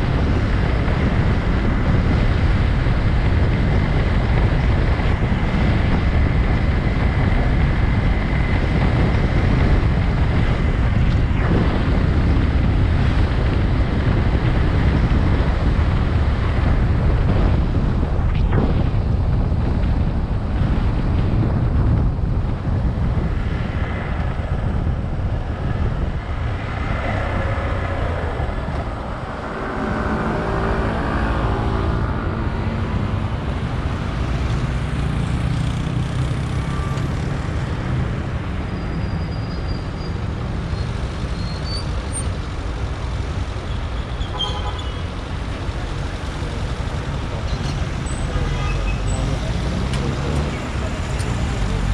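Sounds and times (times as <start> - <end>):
traffic engines and road noise: 0.0 - 51.9
wind on microphone: 0.0 - 51.9
passing engine: 23.2 - 41.2, 45.2 - 51.9.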